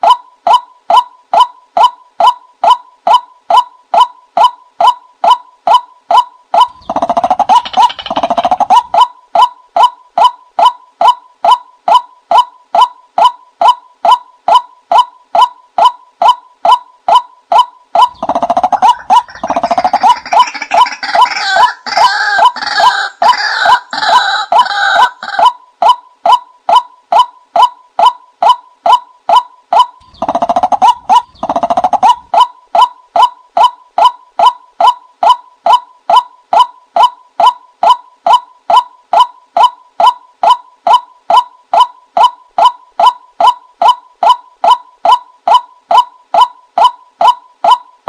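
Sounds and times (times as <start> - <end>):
bird calling hollow notes: 0.0 - 48.0
bird call with rising notes: 24.8 - 34.5.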